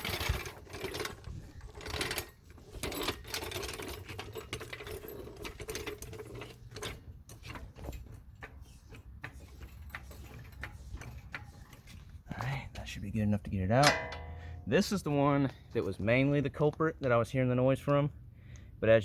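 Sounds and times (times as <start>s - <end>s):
metal scrapes: 0.0s - 12.2s, 13.8s - 14.8s.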